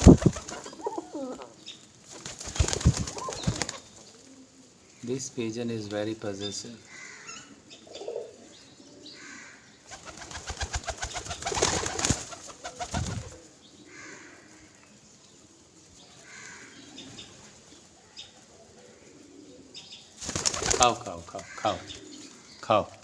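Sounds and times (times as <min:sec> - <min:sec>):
fast rattling noise: 0:00.0 - 0:00.7, 0:02.4 - 0:03.7
pigeons cooing: 0:00.0 - 0:05.5, 0:06.8 - 0:14.8, 0:15.4 - 0:22.6.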